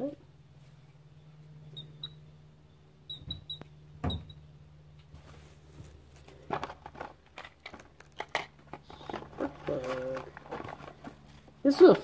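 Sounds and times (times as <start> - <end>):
steady low hum: 0.0 - 12.0
plastic packaging crinkling: 5.8 - 11.9.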